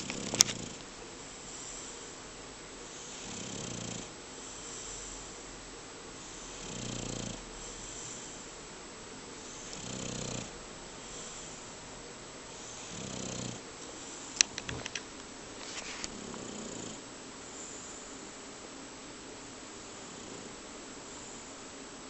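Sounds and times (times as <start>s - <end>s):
dog snoring: 0.0s - 2.2s, 2.8s - 5.4s, 6.1s - 8.5s, 9.4s - 11.8s, 12.5s - 14.5s, 15.7s - 18.0s, 19.9s - 20.6s
sharp clicks: 14.4s - 15.3s.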